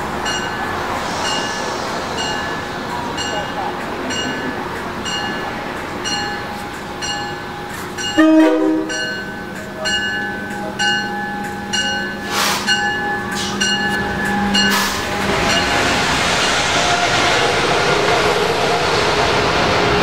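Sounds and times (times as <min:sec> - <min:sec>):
train rushing: 0:00.0 - 0:20.0
bell dinging: 0:03.2 - 0:14.8
train horn blast: 0:08.2 - 0:09.0.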